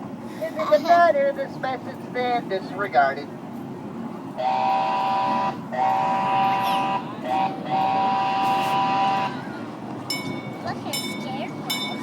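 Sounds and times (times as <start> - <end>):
low rumble of train: 0.0 - 12.0
train whistle two-tone chord: 4.4 - 9.4.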